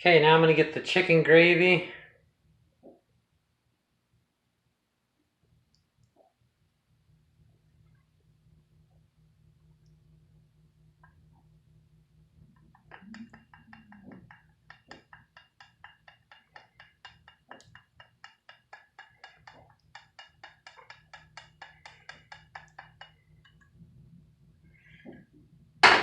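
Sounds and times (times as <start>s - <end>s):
metal utensil tapping a pot: 12.8s - 23.6s.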